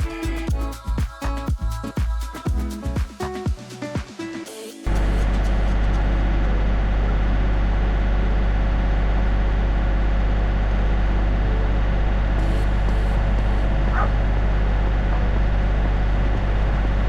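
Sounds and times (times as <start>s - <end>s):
tractor engine droning: 4.9s - 17.0s.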